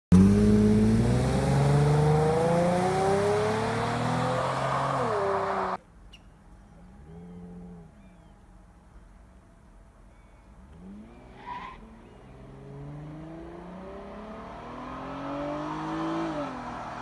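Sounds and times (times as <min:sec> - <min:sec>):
car engine accelerating: 0:00.1 - 0:05.8, 0:10.6 - 0:17.0.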